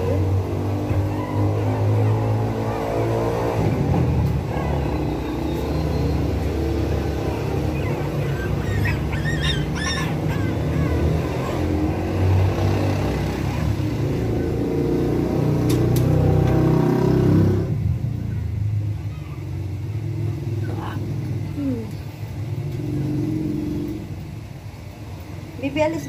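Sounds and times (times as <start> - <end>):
pet blower dryer running: 0.0 - 17.8.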